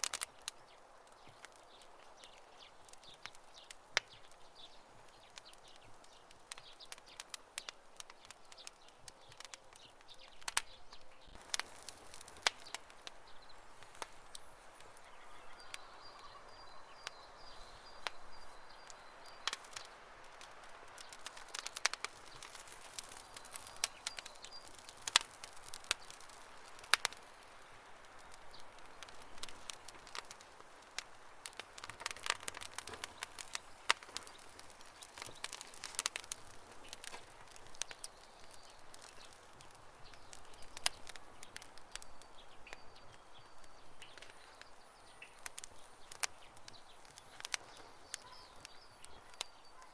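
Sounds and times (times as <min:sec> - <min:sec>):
campfire crackling: 0:00.0 - 0:49.9
faint high chirping: 0:12.5 - 0:20.0, 0:40.1 - 0:49.9.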